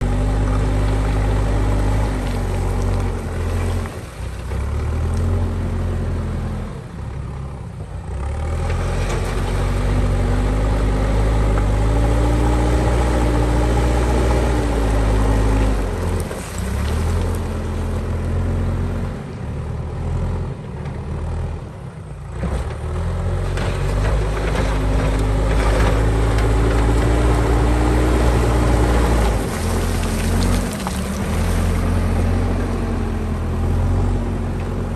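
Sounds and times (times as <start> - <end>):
diesel engine revving under load: 0.0 - 34.9.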